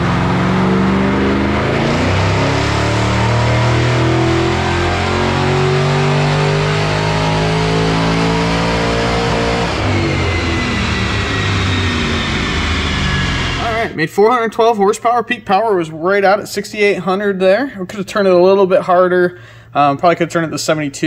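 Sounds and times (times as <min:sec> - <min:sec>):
car engine revving: 0:00.0 - 0:14.0
supercharger whine: 0:00.0 - 0:14.0.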